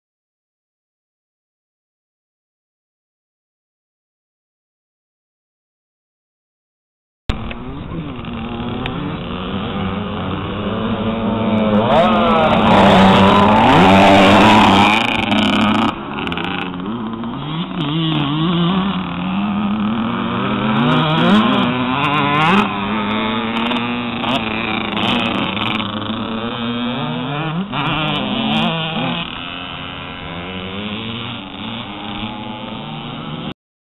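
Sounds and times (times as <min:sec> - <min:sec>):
motocross bike engine revving: 0:07.3 - 0:33.6.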